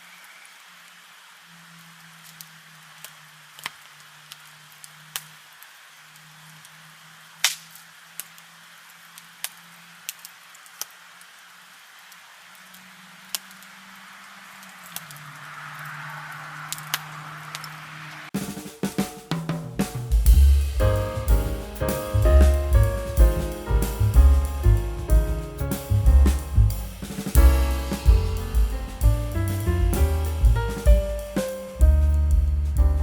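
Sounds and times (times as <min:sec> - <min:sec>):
steady hiss: 0:17.0 - 0:33.0.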